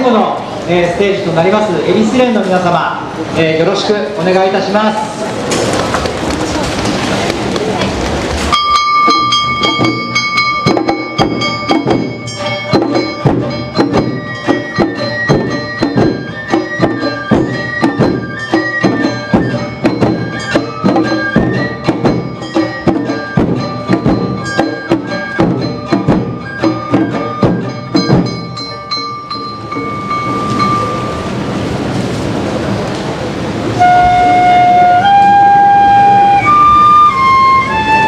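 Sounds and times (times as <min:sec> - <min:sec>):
bamboo flute melody: 0:08.5 - 0:31.3, 0:33.8 - 0:38.0
steady drum beat: 0:09.1 - 0:30.9.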